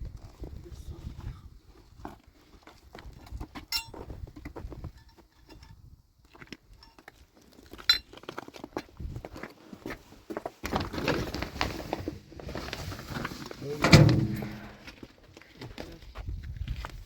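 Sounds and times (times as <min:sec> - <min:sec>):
sharp ringing clink: 0:03.7 - 0:04.0
objects knocking and clattering: 0:13.8 - 0:14.9.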